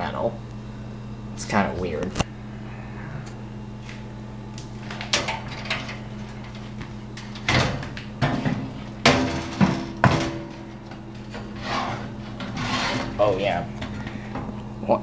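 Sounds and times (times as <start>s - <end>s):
steady low hum: 0.0s - 15.0s
metal fan knocking and clunking: 4.8s - 14.6s.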